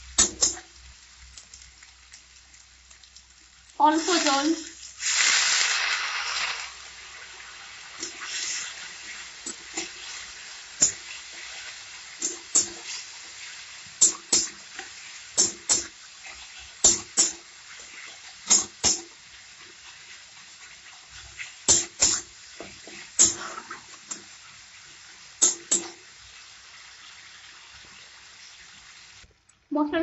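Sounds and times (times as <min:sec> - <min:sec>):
food sizzling in a wok: 0:00.0 - 0:29.3
spatula scraping and knocking wok: 0:07.4 - 0:24.4, 0:25.4 - 0:26.1.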